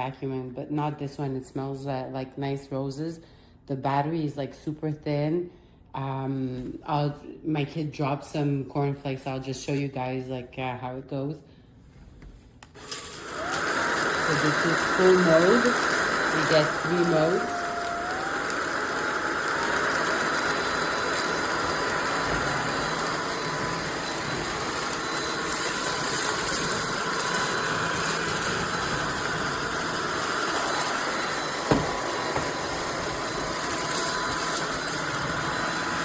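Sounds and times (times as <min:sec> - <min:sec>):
stick vacuum running: 0:12.7 - 0:36.0.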